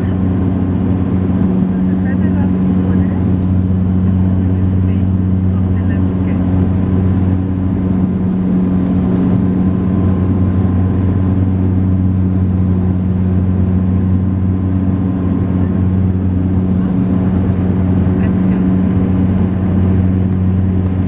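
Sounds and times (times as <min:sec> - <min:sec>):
propeller drone inside cabin: 0:00.0 - 0:21.0.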